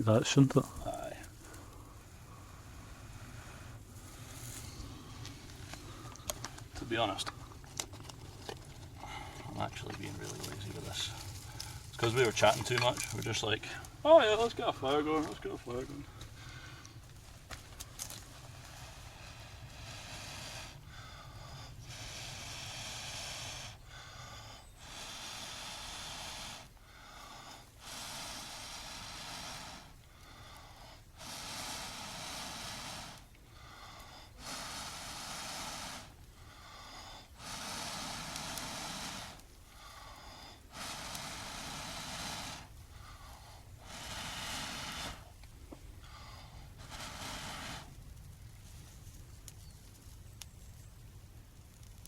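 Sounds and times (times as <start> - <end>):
person blowing on ember: 17.9 - 45.4, 46.0 - 48.0
breath drawn in: 18.3 - 45.4, 46.0 - 48.0.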